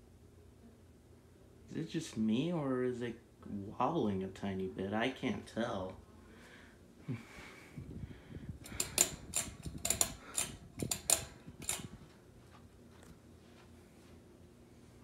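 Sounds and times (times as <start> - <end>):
ceiling fan humming: 0.0 - 15.0
sharp clicks and taps: 8.6 - 12.0.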